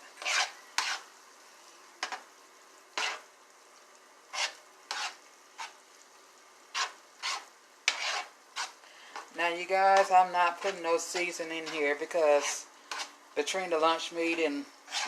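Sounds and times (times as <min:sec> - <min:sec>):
spoon scraping food in a pan: 0:00.0 - 0:01.2, 0:02.0 - 0:02.3, 0:02.9 - 0:03.3, 0:04.3 - 0:05.9, 0:06.6 - 0:15.0
faint sizzle: 0:00.0 - 0:15.0.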